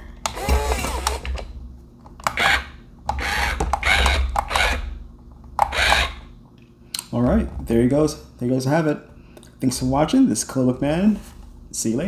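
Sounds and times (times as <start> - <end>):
toy gear-motor grinding: 0.3 - 1.2, 2.3 - 4.9, 5.7 - 6.2.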